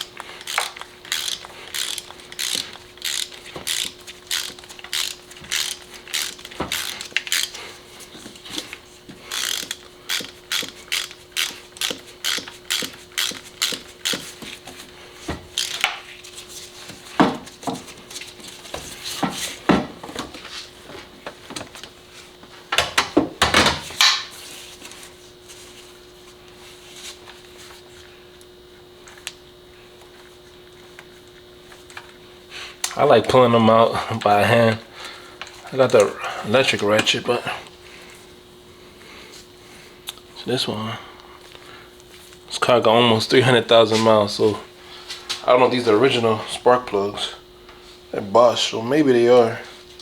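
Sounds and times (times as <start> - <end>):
ratchet wrench clicking: 0.0 - 7.6, 9.3 - 14.3, 15.6 - 15.9.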